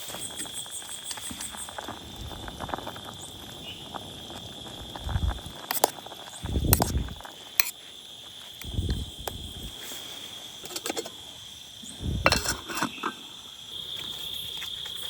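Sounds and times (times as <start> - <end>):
dull low thumps: 4.9 - 5.5, 6.4 - 7.2, 8.6 - 9.8, 12.0 - 12.3.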